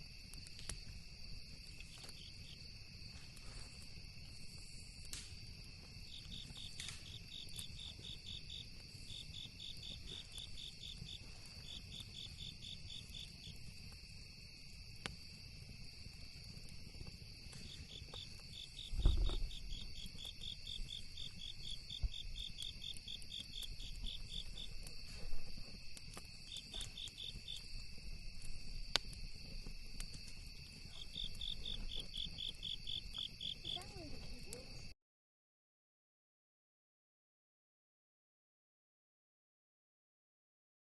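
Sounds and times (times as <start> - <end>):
crickets chirping: 0.0 - 34.9
high insect drone: 0.1 - 34.9
sharp crackles: 0.2 - 34.9
dull thump: 18.9 - 19.5.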